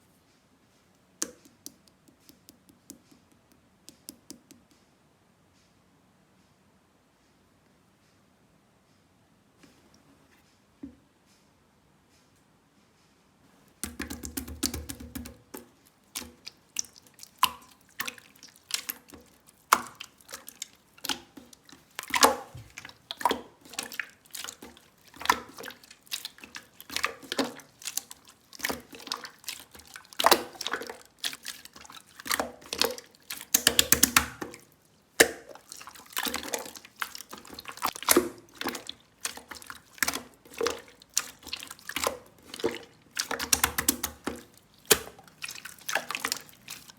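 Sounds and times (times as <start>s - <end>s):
slime clicking and popping: 33.4s - 34.4s.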